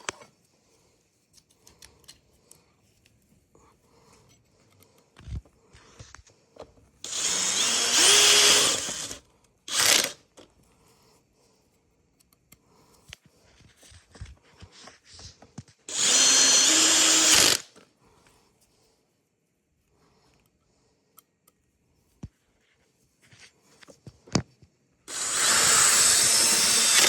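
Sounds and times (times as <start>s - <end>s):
clicks of parts and tools handled: 0.0s - 0.6s, 1.2s - 3.4s, 4.1s - 7.0s, 12.1s - 15.9s
power drill motor spinning: 7.0s - 10.4s, 15.9s - 17.8s, 25.1s - 27.0s.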